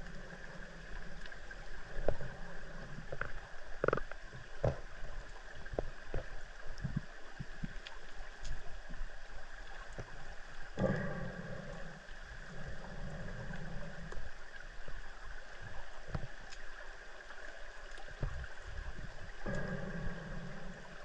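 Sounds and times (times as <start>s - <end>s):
underwater hum and hiss: 0.0s - 21.0s
underwater clicks and knocks: 1.9s - 8.7s, 16.0s - 16.6s, 18.0s - 20.8s.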